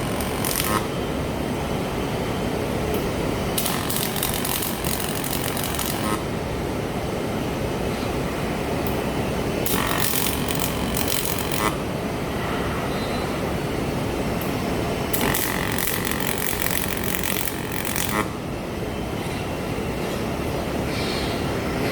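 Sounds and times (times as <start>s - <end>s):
welding arc crackle: 0.0s - 0.9s, 3.6s - 6.2s, 9.6s - 11.8s, 15.1s - 18.3s.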